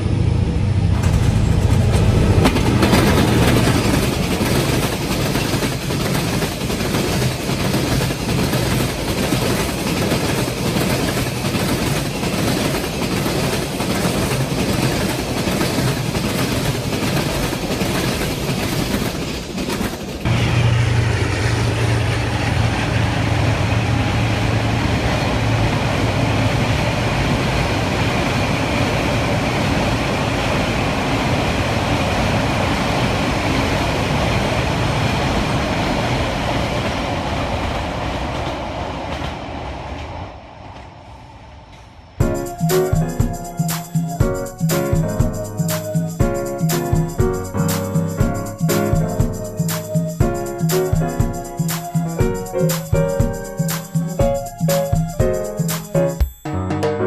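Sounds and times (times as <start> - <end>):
heavy train rumble: 0.0 - 56.7
train wheels clattering: 0.8 - 24.6, 41.7 - 56.4.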